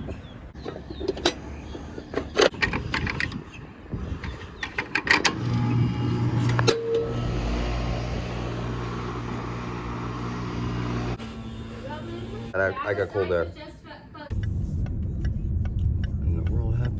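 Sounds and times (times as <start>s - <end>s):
clicks and knocks: 0.6s - 3.4s
motor humming: 4.1s - 12.6s.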